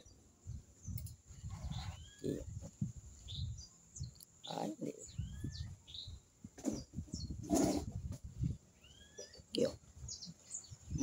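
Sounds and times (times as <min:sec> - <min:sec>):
bird chirps: 0:00.0 - 0:08.0, 0:08.7 - 0:11.0
whistled bird notes: 0:03.3 - 0:07.8, 0:08.8 - 0:11.0.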